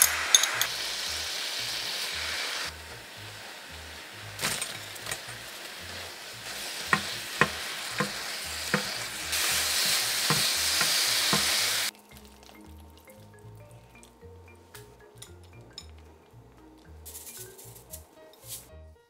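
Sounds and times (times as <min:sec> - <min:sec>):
food sizzling in a frying pan: 0:00.0 - 0:13.3
utensil clicking against pan: 0:06.8 - 0:09.0.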